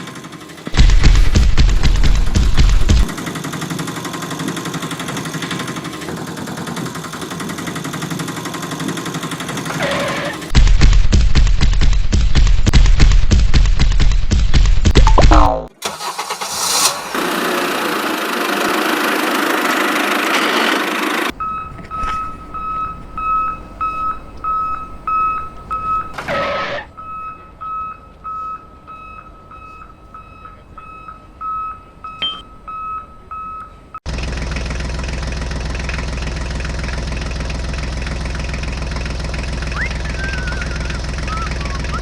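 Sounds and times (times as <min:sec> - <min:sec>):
electronic beeping: 0:15.0 - 0:15.7, 0:21.4 - 0:33.7
loud hiss: 0:15.9 - 0:18.6
small motor humming: 0:36.9 - 0:42.0.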